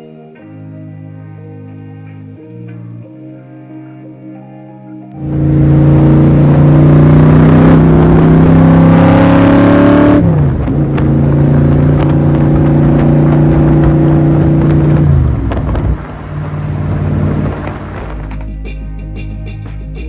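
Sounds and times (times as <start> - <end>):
car engine accelerating: 5.2 - 18.4.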